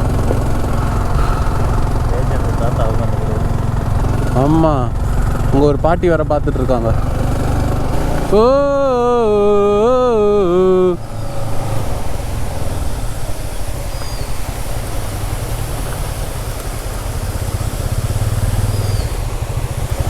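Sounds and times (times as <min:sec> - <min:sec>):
vehicle engine rumble: 0:00.0 - 0:20.0
wind: 0:00.0 - 0:20.0
voice drawing out wavering ooh: 0:08.3 - 0:11.1.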